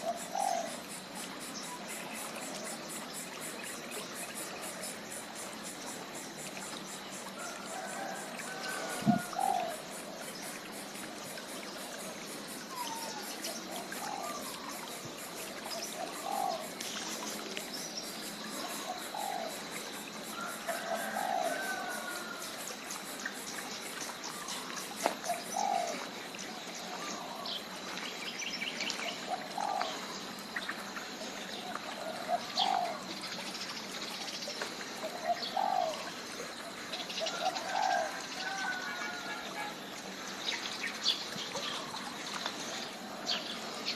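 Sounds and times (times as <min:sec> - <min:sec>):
background hiss: 0:00.0 - 0:43.9.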